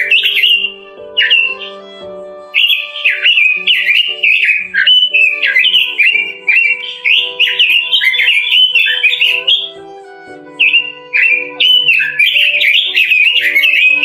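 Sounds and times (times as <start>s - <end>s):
bird singing warbled phrases: 0.0s - 1.9s, 2.5s - 14.0s
soft instrumental music: 0.0s - 14.0s.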